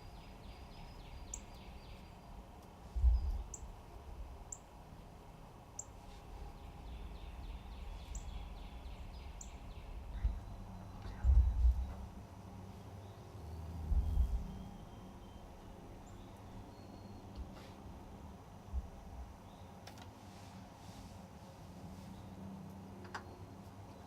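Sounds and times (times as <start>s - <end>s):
small birds chirping: 0.0s - 3.8s, 4.4s - 4.8s, 5.7s - 12.2s, 12.8s - 17.8s
outdoor background noise: 0.0s - 24.0s.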